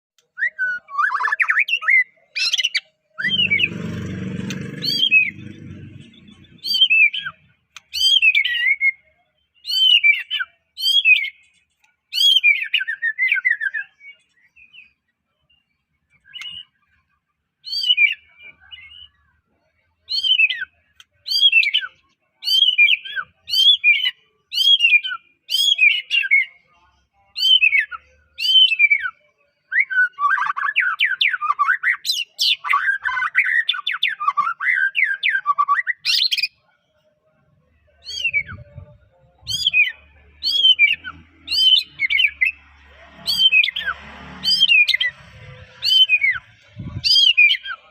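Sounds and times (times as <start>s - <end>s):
low rumbling noise: 3.2s - 6.8s, 42.6s - 47.1s
bird whistling song: 6.3s - 11.4s, 16.2s - 16.8s, 17.6s - 19.2s, 20.1s - 26.6s, 27.4s - 36.5s, 38.0s - 42.6s, 45.8s - 47.8s.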